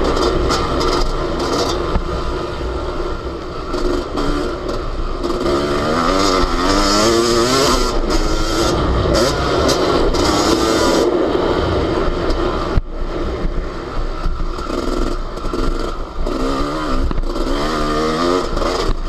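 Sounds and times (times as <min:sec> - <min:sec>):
motocross engine revving: 0:00.0 - 0:02.3, 0:03.5 - 0:11.6, 0:14.5 - 0:19.0.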